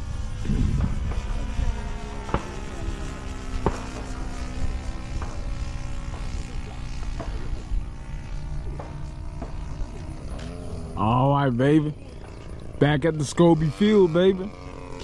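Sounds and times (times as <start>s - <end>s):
wind noise on microphone: 0.0s - 2.0s
model airplane motor droning: 0.0s - 15.0s.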